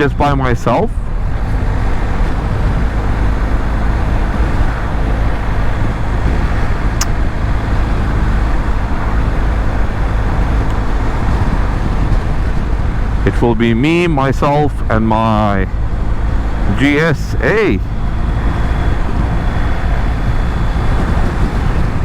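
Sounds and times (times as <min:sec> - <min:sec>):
motorcycle engine hum: 0:00.0 - 0:22.0
wind and road noise: 0:00.0 - 0:22.0.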